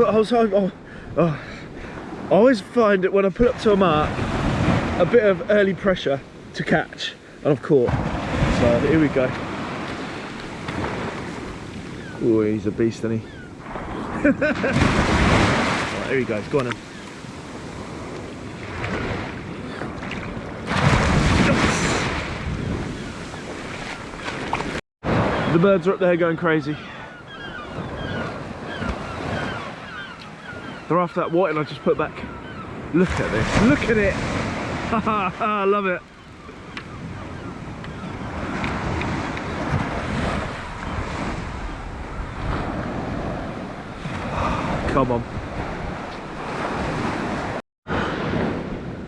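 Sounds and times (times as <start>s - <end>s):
waves breaking on a beach: 0.0s - 49.0s
wind buffeting microphone: 7.9s - 25.4s, 36.3s - 49.0s.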